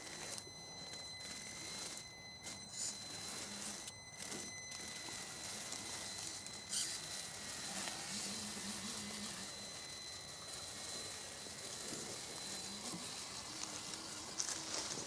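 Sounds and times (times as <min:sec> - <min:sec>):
thin steady motor whine: 0:00.0 - 0:15.0
leaves and twigs crackling: 0:11.1 - 0:15.0.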